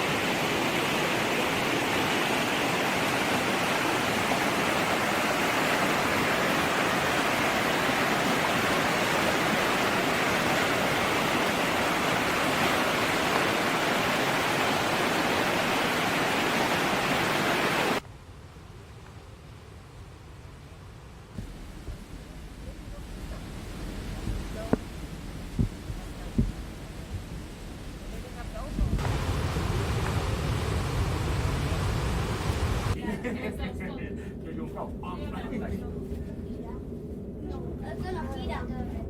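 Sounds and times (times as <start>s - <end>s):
running water rushing: 0.0s - 18.0s, 21.4s - 33.0s.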